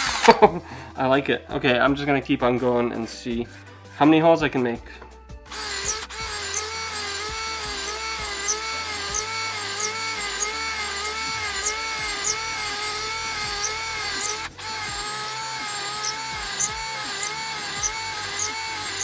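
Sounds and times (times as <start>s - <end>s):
cordless drill whining: 0.0s - 0.4s, 5.5s - 19.0s.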